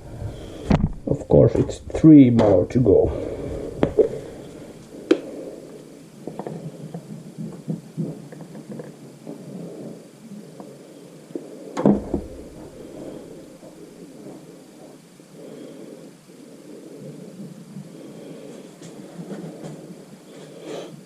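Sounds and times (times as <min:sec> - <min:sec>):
heavier knock: 0:11.8 - 0:12.8.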